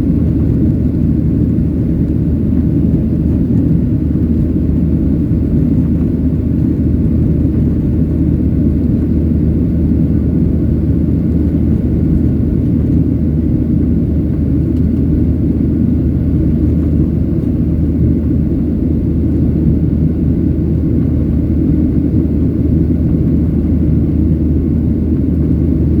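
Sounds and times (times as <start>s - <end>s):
jet engines deep rumble: 0.0s - 26.0s.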